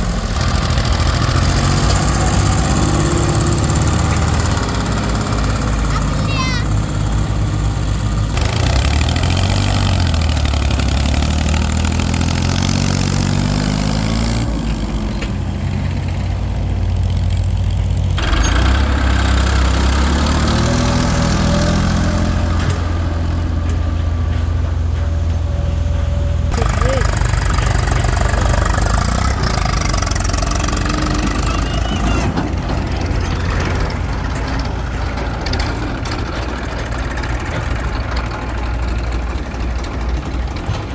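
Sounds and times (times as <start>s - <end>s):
diesel engines revving: 0.0s - 40.9s.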